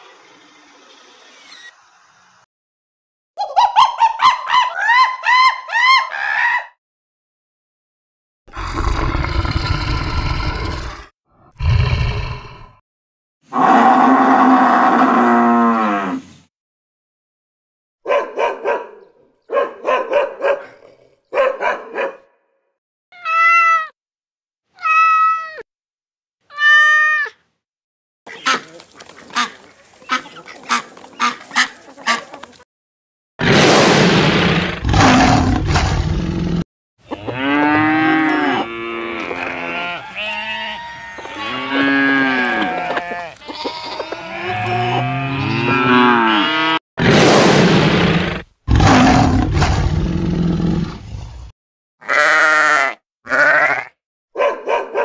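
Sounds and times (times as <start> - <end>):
cow mooing: 37.1 - 46.8, 52.0 - 53.9
quavering bleating: 37.1 - 46.8, 52.0 - 54.0.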